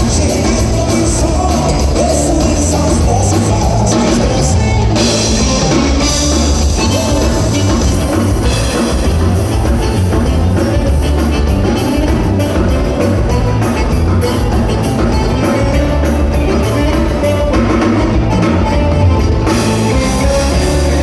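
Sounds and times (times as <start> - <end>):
band playing live: 0.0 - 21.0
drums and cymbals beat: 0.0 - 21.0.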